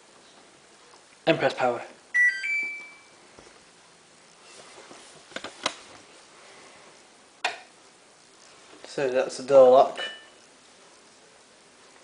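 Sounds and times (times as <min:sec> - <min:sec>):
washing machine beeping tune: 0:02.1 - 0:03.2.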